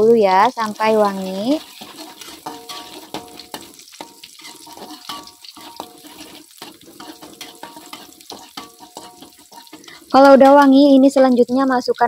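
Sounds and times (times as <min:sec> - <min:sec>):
shallots and garlic sizzling: 0:00.0 - 0:12.0
metal spatula scraping wok: 0:00.4 - 0:11.6
wok metallic ring: 0:01.3 - 0:10.8.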